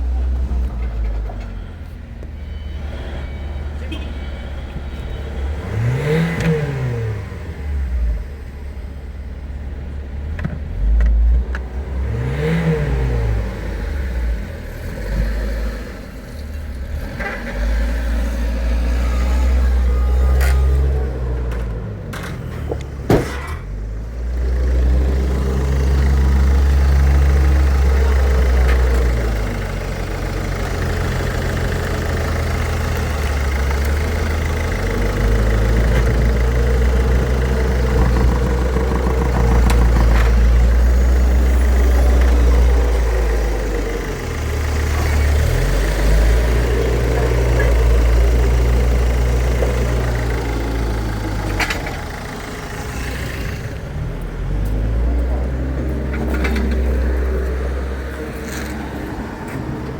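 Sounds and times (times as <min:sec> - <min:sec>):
diesel engine idling: 0:22.7 - 0:59.9.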